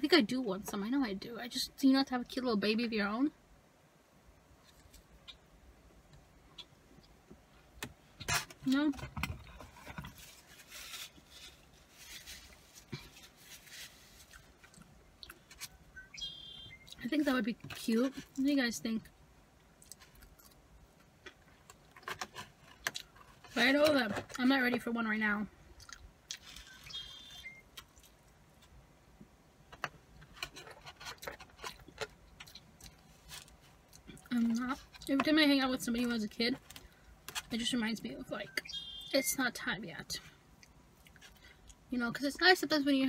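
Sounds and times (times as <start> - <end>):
paper napkin rustling: 10.0 - 14.6
faint chewing: 19.6 - 23.6, 25.7 - 26.9, 30.4 - 35.2, 40.6 - 41.8.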